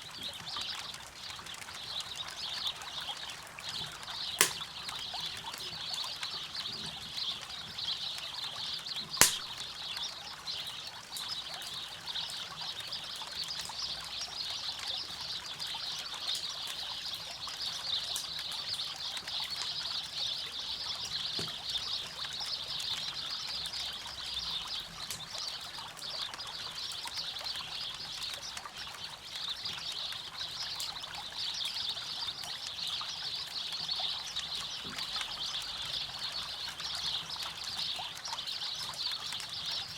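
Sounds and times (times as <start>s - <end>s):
campfire crackling: 3.6s - 5.6s, 8.9s - 10.0s
sharp loud pop of fire: 4.4s - 4.6s, 9.2s - 9.5s.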